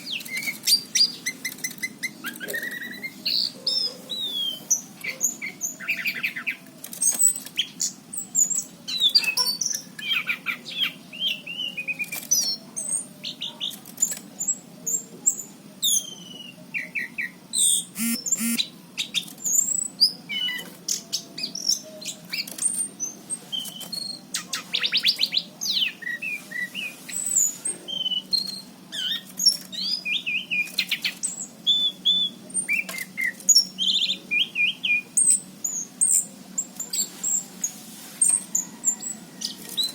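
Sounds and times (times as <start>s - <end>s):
thrush singing whistles and trills: 15.8s - 20.6s, 21.4s - 36.3s.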